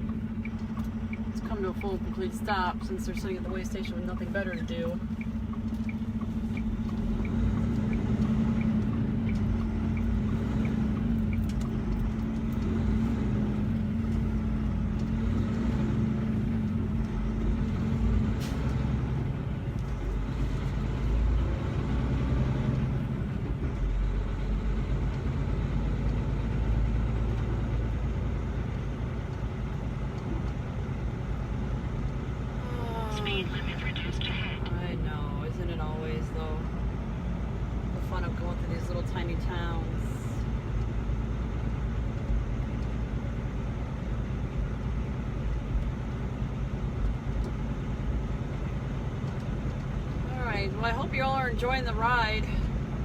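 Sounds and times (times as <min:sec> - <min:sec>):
light ticking: 0:00.0 - 0:12.7
diesel engine and road noise: 0:00.0 - 0:53.0
steady hum: 0:32.6 - 0:36.5.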